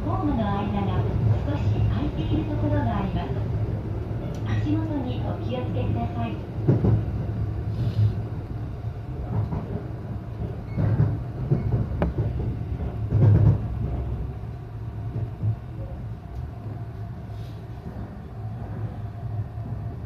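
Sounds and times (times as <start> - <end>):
train running gear rumble: 0.0 - 20.0.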